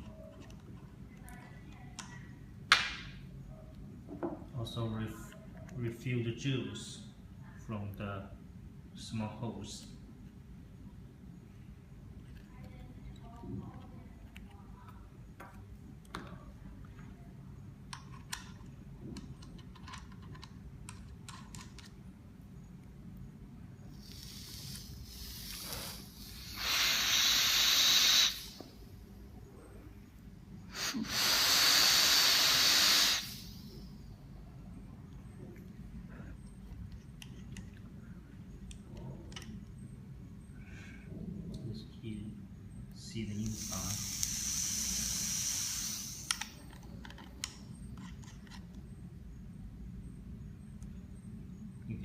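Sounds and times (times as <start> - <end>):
steady hiss: 23.8 - 34.1, 42.9 - 46.7
vape puffs of rushing air: 24.0 - 28.8, 30.7 - 33.9, 43.5 - 46.6.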